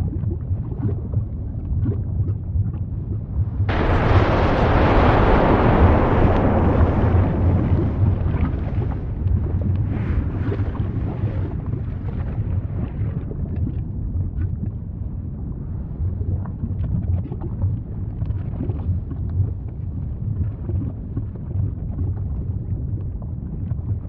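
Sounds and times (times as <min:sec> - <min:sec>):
small crackles and pops: 0:00.0 - 0:14.9, 0:16.2 - 0:24.0
volcanic eruption rumbling: 0:03.0 - 0:13.5.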